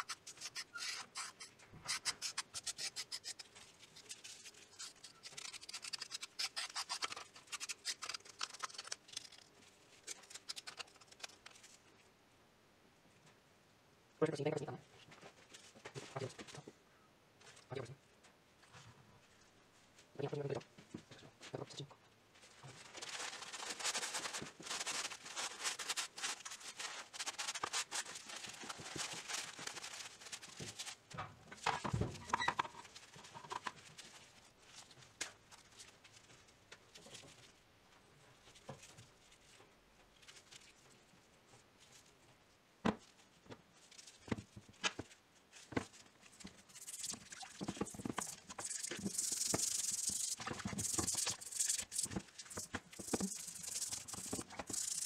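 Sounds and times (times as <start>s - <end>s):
toothbrush scrubbing metal: 46.7s - 55.0s.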